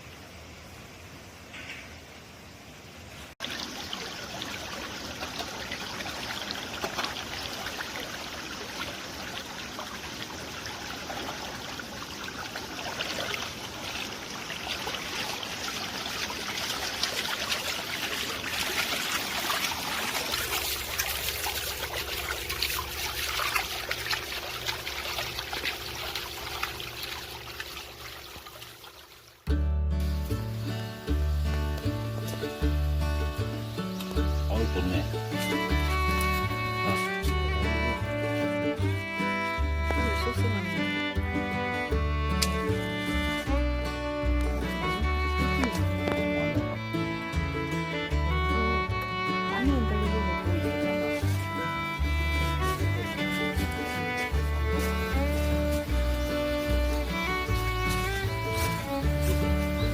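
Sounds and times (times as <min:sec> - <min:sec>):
stream water flowing over rocks: 0:00.0 - 0:59.9
low steady hum: 0:29.5 - 0:59.9.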